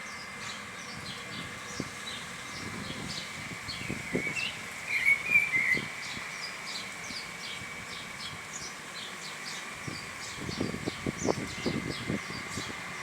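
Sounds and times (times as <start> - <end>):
small birds chirping: 0.0 - 13.0
bird warbling call: 3.7 - 6.9.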